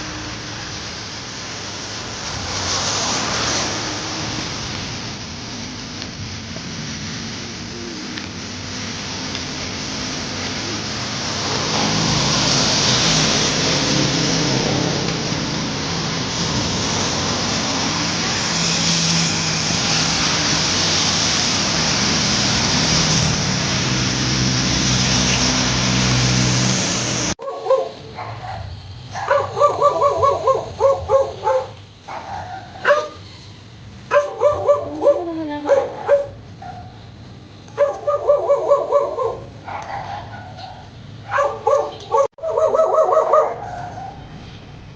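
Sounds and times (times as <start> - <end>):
steady rushing noise: 0.0 - 32.2
dog barking and yipping: 27.4 - 33.3, 34.1 - 37.0, 37.8 - 44.2.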